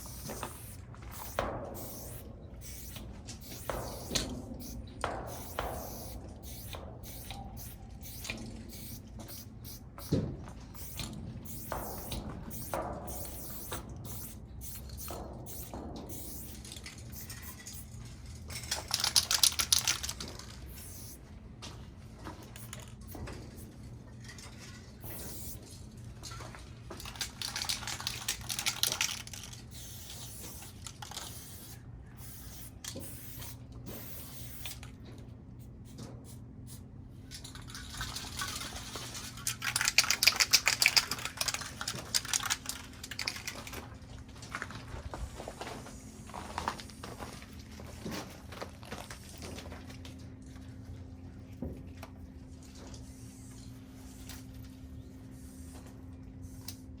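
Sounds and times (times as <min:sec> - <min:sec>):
spray paint can hissing: 0:00.0 - 0:10.1, 0:10.7 - 0:17.9, 0:18.7 - 0:21.2, 0:25.1 - 0:25.6, 0:27.0 - 0:34.8, 0:39.6 - 0:43.6.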